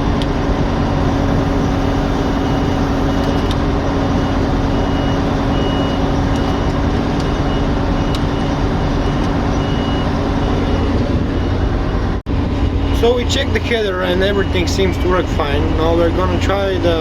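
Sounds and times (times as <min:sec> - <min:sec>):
combine harvester humming: 0:00.0 - 0:17.0
high warning beep: 0:01.0 - 0:11.6.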